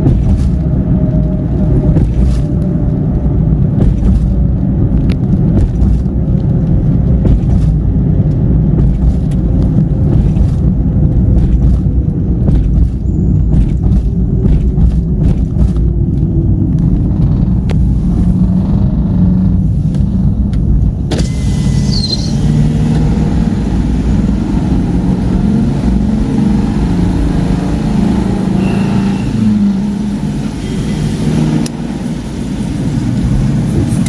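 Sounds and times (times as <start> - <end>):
car engine hum and road noise: 0.0 - 34.0.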